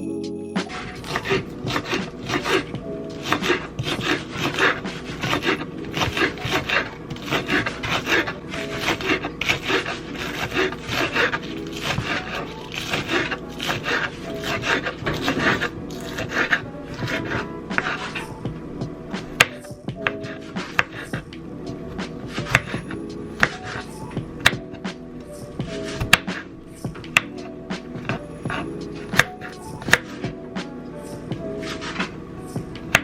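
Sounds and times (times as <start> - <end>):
rasping scraping strokes: 0.7 - 18.4, 31.6 - 32.2.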